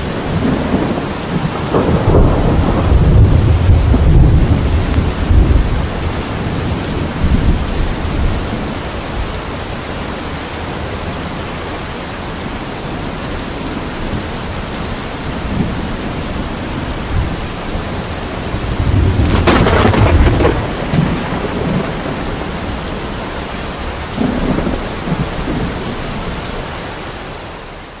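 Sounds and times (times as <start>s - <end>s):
thunder rumbling: 0.0s - 9.0s, 15.2s - 26.5s
heavy rain: 0.0s - 28.0s.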